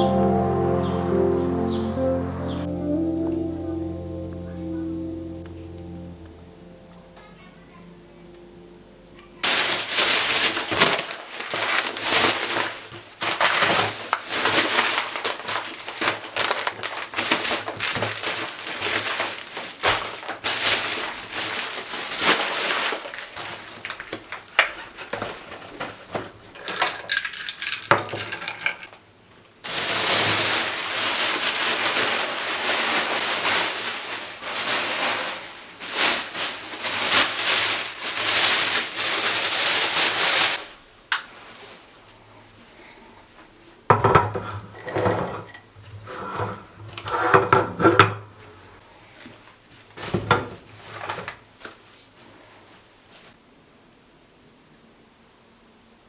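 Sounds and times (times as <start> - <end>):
dishes and cutlery clinking: 26.6 - 29.0, 43.9 - 46.6.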